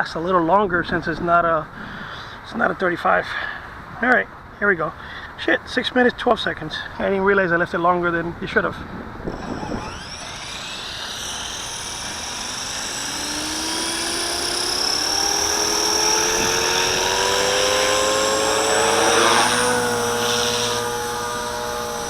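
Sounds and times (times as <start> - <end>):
electric rc helicopter motor whine: 9.2 - 22.0.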